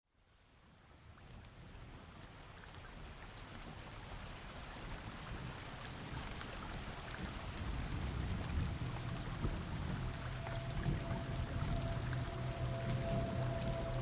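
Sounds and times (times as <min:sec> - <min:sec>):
low rumble: 0:07.5 - 0:14.0
steady rushing noise: 0:07.6 - 0:14.0.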